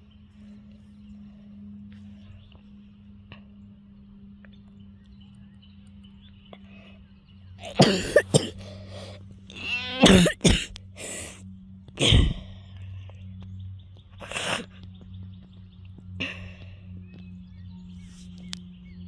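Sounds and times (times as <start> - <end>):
person coughing: 7.6 - 9.2, 9.8 - 11.4, 12.0 - 12.5
person clearing throat: 7.6 - 11.4, 12.0 - 12.5.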